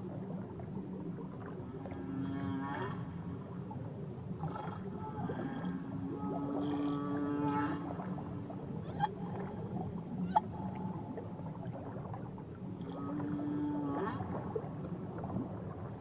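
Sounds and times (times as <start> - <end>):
whale call: 5.0 - 11.0.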